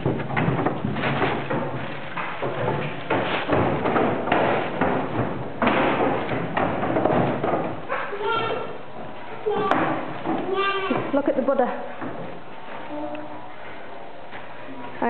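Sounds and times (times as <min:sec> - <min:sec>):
irregular thuds: 0:00.0 - 0:08.0
rustling near microphone: 0:00.0 - 0:15.0.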